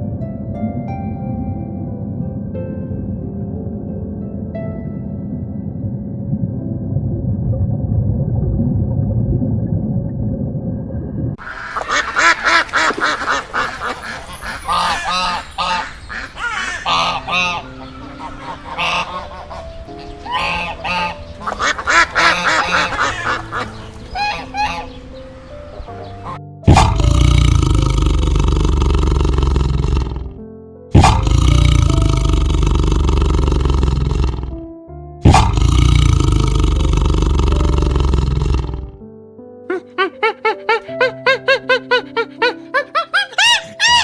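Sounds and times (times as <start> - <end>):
background music: 0.0 - 10.0, 11.5 - 44.0
geese honking: 11.4 - 26.9.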